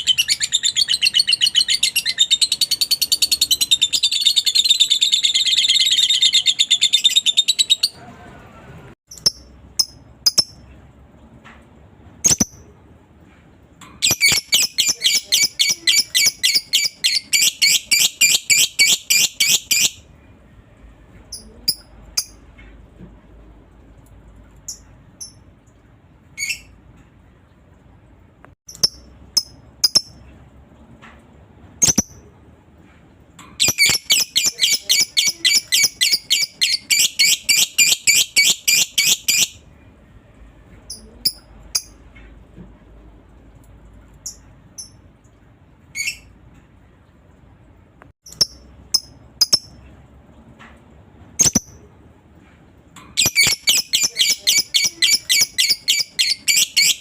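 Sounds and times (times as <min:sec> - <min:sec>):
lovebird chattering in rapid trills: 0:53.2 - 0:57.0.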